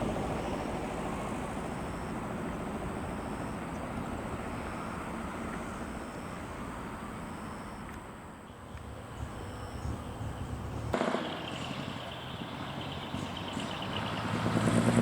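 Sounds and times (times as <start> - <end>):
diesel truck engine driving off: 8.9 - 15.0.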